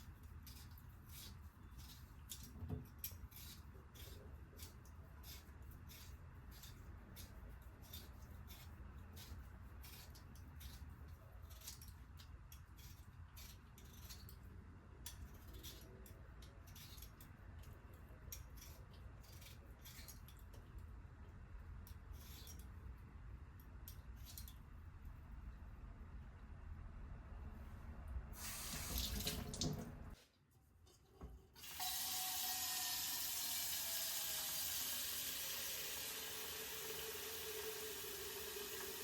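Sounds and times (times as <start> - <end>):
food preparation ticks and scrapes: 0.0 - 23.0
low room hum: 0.0 - 39.0.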